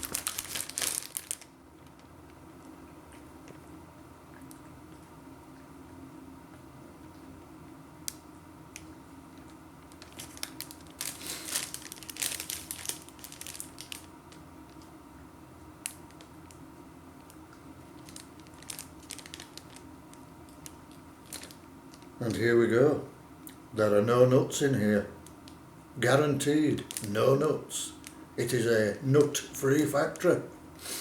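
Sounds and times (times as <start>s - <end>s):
food packaging crinkling: 0.0s - 2.4s, 9.9s - 15.0s, 17.2s - 22.2s, 26.7s - 28.2s.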